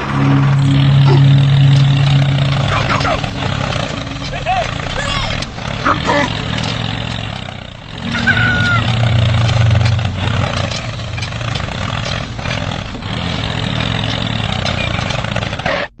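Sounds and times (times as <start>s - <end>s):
tractor engine running: 0.0s - 15.8s.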